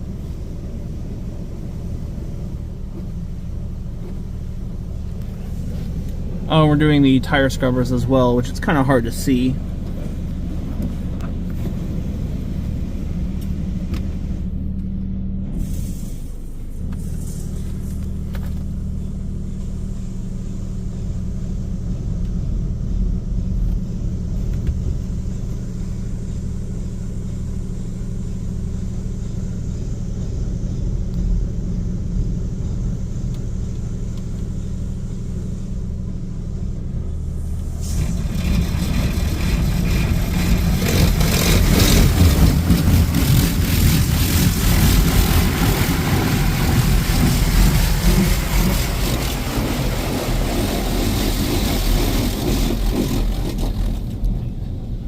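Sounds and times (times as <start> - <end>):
low hum of motors and pumps: 0.0 - 55.0
water spray hitting car: 37.6 - 54.2.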